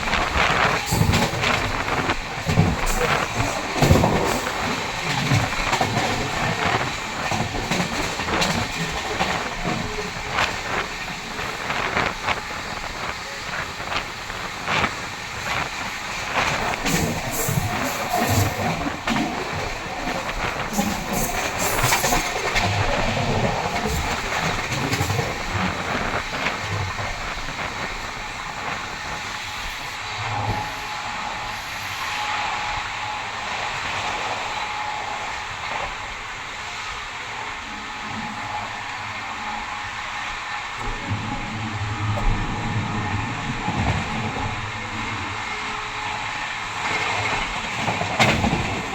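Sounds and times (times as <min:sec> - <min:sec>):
wheels clattering on track: 0:00.0 - 0:29.9, 0:40.7 - 0:48.9
train rumbling: 0:00.0 - 0:48.9.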